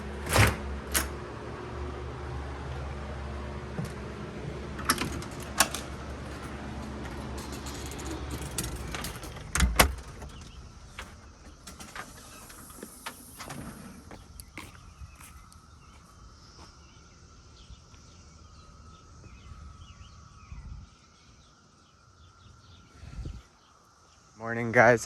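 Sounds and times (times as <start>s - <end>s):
car engine humming: 0.0s - 14.6s.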